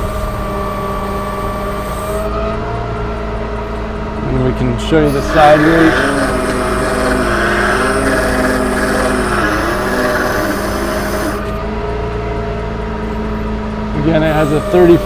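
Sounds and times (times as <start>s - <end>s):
hydraulic hissing: 0.0s - 2.4s, 4.9s - 11.9s, 13.9s - 15.0s
diesel truck engine running: 0.0s - 15.0s.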